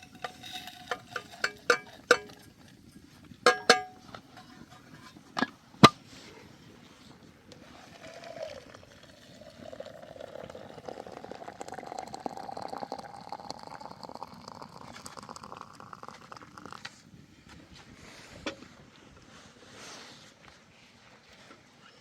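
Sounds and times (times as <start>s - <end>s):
liquid pouring into a vessel: 7.7s - 17.0s.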